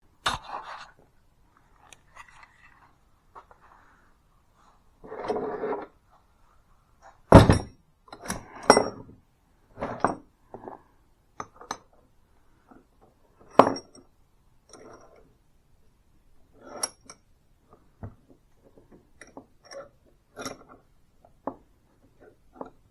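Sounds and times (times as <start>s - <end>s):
metal tool scrape: 5.0s - 5.9s.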